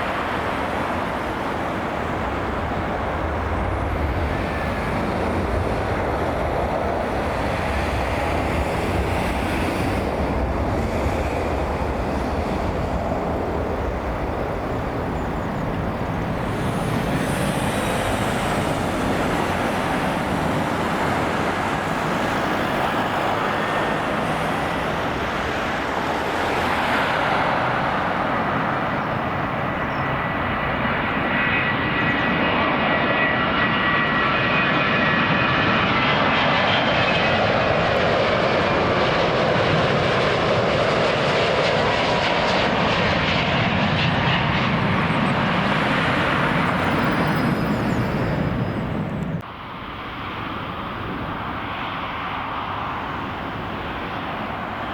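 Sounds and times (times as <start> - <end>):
jet engines roaring: 0.0 - 54.9
high engine whine: 44.1 - 51.8.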